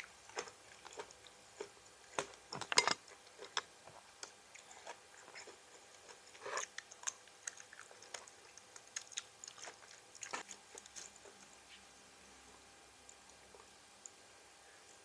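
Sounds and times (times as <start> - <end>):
chewing crisp raw vegetables: 0.0 - 11.9.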